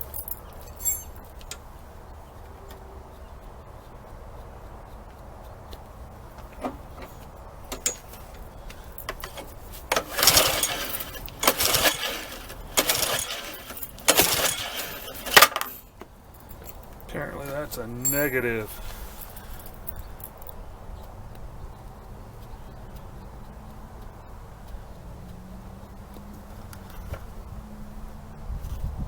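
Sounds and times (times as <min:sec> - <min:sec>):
recoil starter pulls whirring: 0:06.2 - 0:20.0.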